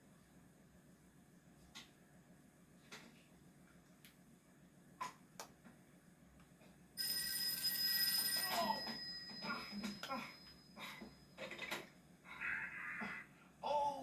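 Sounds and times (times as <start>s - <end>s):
telephone bell ringing: 7.0s - 11.6s.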